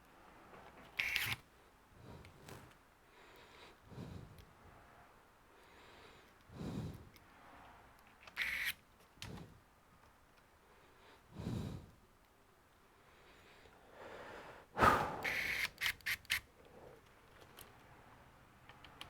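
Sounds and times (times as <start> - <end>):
soft breath: 1.6 - 7.8, 10.6 - 12.1, 12.9 - 15.5.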